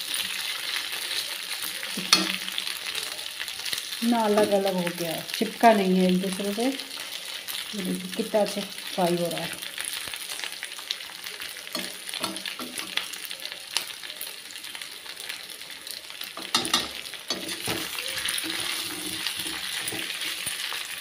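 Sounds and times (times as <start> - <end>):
food sizzling in oil: 0.0 - 21.0
metal spatula scraping pan: 16.4 - 20.6.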